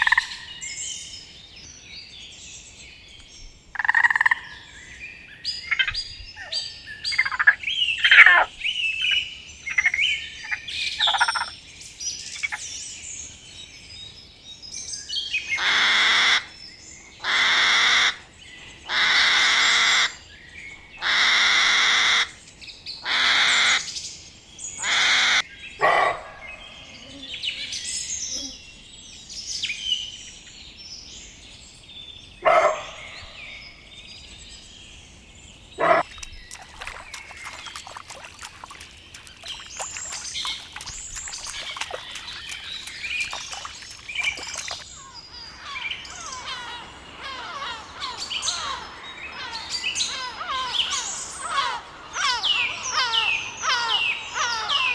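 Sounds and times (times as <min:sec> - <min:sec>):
quick bird chirps: 0:35.8 - 0:45.2
harsh bird calls: 0:35.8 - 0:54.9.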